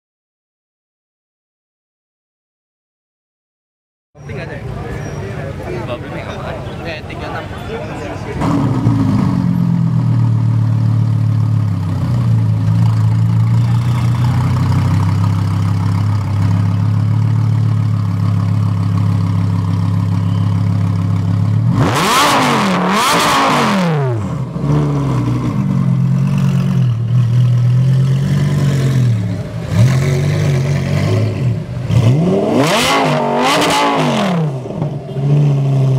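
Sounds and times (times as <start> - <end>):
car engine idling and revving: 8.1 - 35.9.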